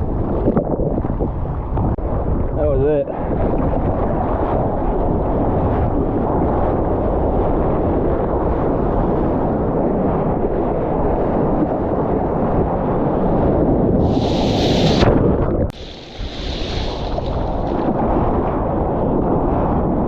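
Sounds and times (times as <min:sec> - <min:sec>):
wind buffeting microphone: 0:00.0 - 0:20.0
rushing water: 0:14.0 - 0:15.1, 0:15.7 - 0:18.0
splashing water hiss: 0:14.0 - 0:15.1, 0:15.8 - 0:18.0.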